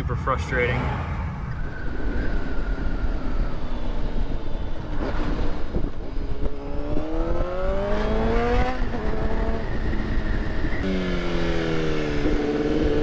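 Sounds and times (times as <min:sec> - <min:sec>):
vehicle engine accelerating: 0:03.8 - 0:13.0.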